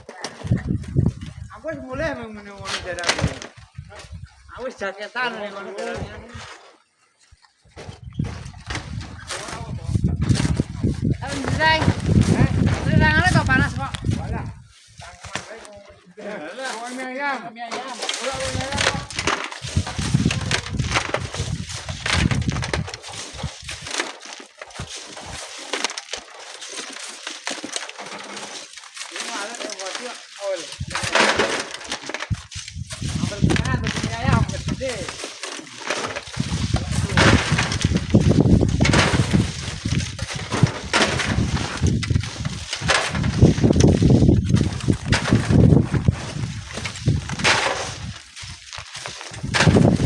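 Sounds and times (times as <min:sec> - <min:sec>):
crunching and clicking: 0:00.0 - 0:50.0
wind buffeting microphone: 0:00.4 - 0:04.6, 0:07.7 - 0:15.2, 0:18.3 - 0:23.9, 0:32.3 - 0:35.2, 0:36.1 - 0:50.0.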